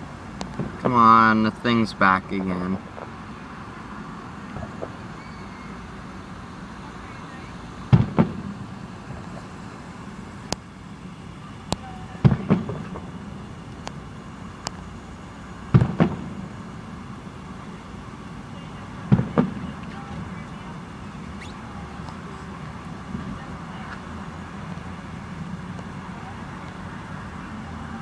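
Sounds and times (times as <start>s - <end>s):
background rumble: 0.0s - 28.0s
sharp firework pops: 4.5s - 5.0s, 7.9s - 8.6s, 11.7s - 13.2s, 15.7s - 16.4s, 19.1s - 20.0s
distant fireworks booming: 4.5s - 5.9s, 7.8s - 9.6s, 11.7s - 13.3s, 15.7s - 16.8s, 19.0s - 20.5s.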